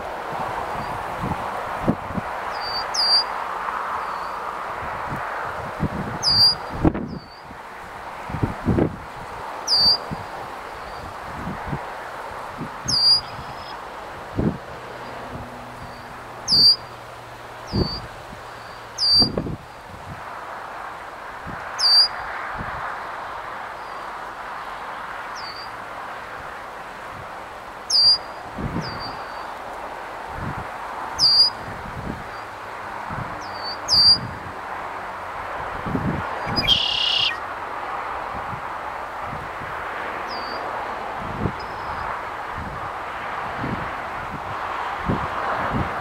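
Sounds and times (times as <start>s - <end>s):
steady outdoor hiss: 0.0s - 46.0s
bird chirping: 2.5s - 3.3s, 6.2s - 7.4s, 9.7s - 10.1s, 12.9s - 13.8s, 15.8s - 16.9s, 17.7s - 19.4s, 21.8s - 22.1s, 25.4s - 25.7s, 27.9s - 29.5s, 31.2s - 31.6s, 33.4s - 34.3s, 36.4s - 37.4s.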